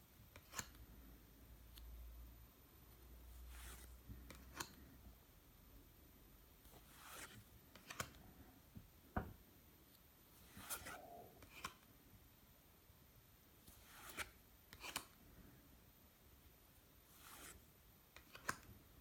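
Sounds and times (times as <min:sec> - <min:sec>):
cards rustling and tapping: 0:06.8 - 0:08.2, 0:10.5 - 0:11.9, 0:13.7 - 0:15.1, 0:18.2 - 0:18.7.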